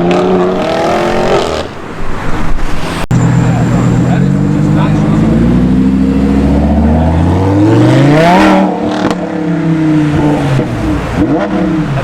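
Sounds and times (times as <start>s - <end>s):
car engine accelerating: 2.9s - 12.0s.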